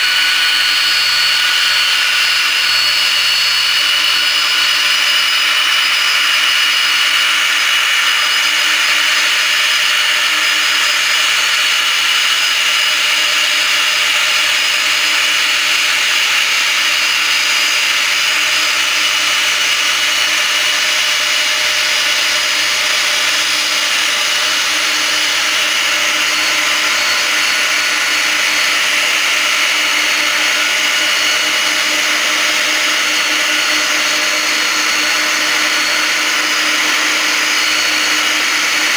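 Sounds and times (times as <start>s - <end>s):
jet engines whining: 0.0s - 38.9s.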